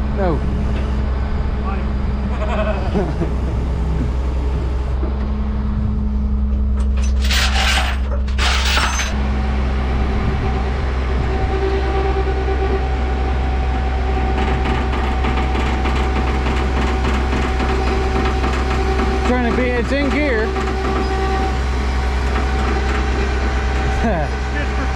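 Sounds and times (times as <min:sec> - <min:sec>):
truck engine idling: 0:00.0 - 0:24.9.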